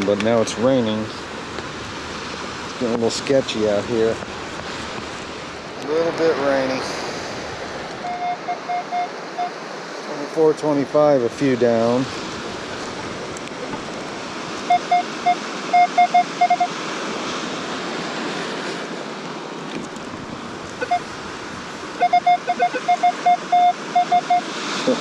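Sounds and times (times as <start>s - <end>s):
surf: 0.0s - 25.0s
wind: 0.0s - 25.0s
metal detector beeps: 8.0s - 9.6s, 14.7s - 16.7s, 20.8s - 21.0s, 22.0s - 24.5s.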